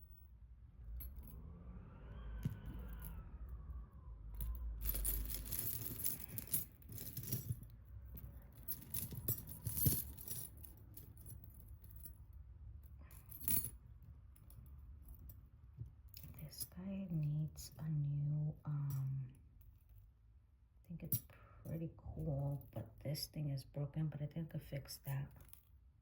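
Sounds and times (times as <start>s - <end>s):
metal jewelry jingling: 4.4s - 12.2s, 13.1s - 13.8s.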